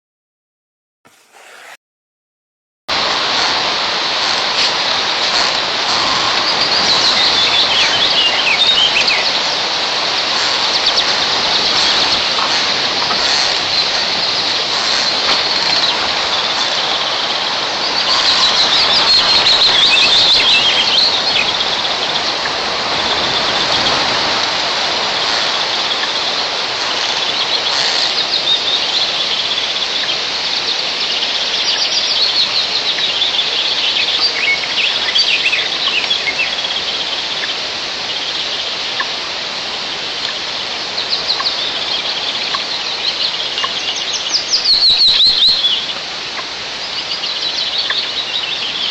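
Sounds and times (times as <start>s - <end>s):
high-pitched bird calls: 41.0s - 46.0s.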